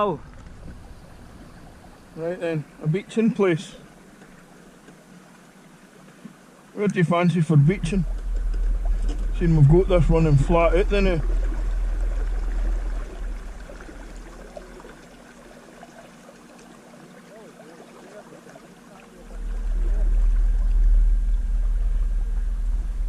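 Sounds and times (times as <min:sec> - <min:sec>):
wind rumble on microphone: 0:00.0 - 0:02.2, 0:07.6 - 0:15.6, 0:19.2 - 0:23.0
faint small motor hum: 0:00.0 - 0:23.0
water washing along hull: 0:00.0 - 0:23.0.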